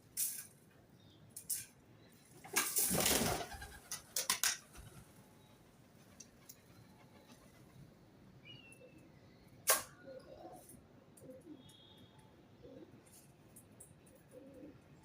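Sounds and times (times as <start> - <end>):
birds moving about: 1.3 - 7.9
faint short bird chirp: 11.3 - 12.8.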